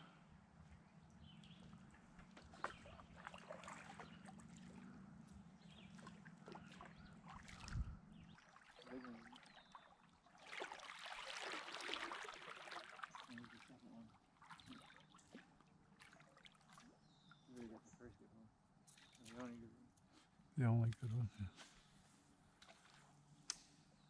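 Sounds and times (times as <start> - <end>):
water trickling: 5.8 - 15.4.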